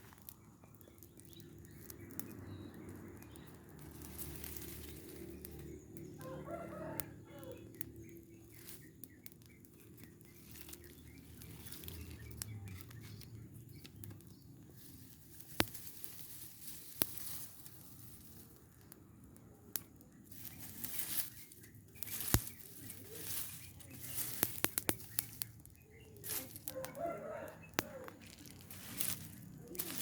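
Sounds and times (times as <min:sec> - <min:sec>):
small clicks and crackles: 0:00.0 - 0:30.0
faint rooster crowing: 0:06.0 - 0:08.0, 0:26.3 - 0:30.0.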